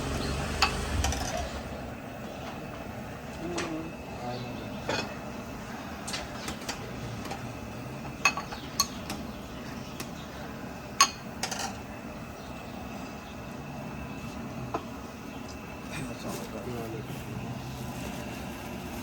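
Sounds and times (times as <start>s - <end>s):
metal utensils clinking on dishes: 4.8s - 5.2s, 8.2s - 9.1s, 11.0s - 11.8s.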